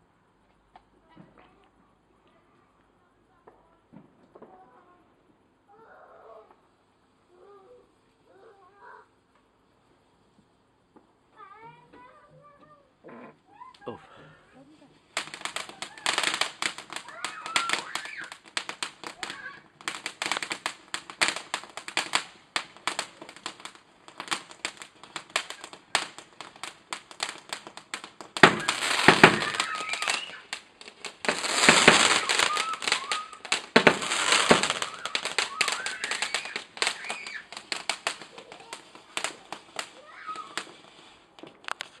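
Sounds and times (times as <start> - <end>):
fireworks banging and crackling: 3.4 - 5.1, 14.6 - 42.0.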